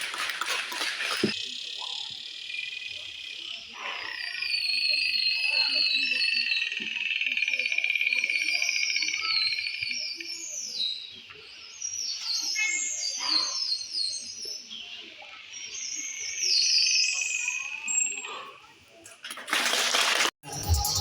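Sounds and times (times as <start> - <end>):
dolphin whistles and squeaks: 3.7 - 6.7.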